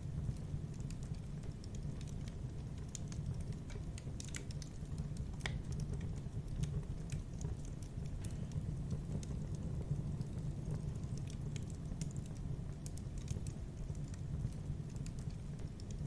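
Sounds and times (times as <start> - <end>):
low rumble of flame: 0.0 - 16.0
wood fire crackling and popping: 0.0 - 16.0.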